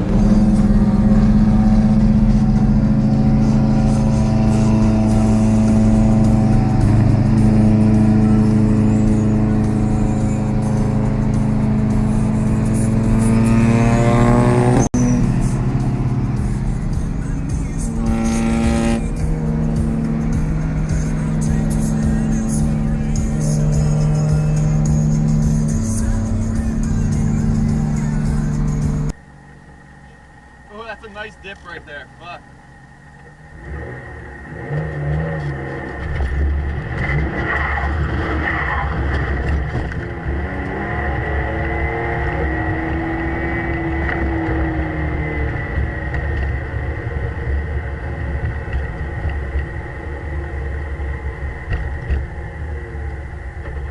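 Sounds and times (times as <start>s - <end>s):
background music: 0.0s - 29.1s
car engine accelerating: 0.0s - 53.9s.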